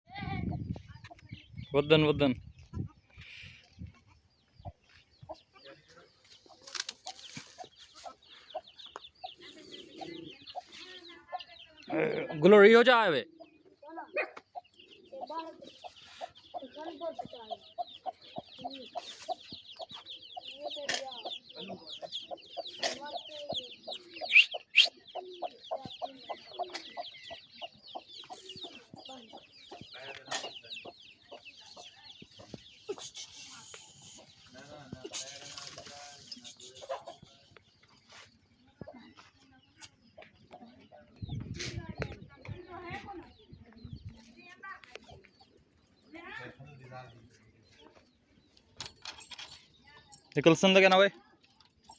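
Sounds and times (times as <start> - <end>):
chickens clucking: 0.1 - 51.9
loud sharp calls: 24.1 - 25.0.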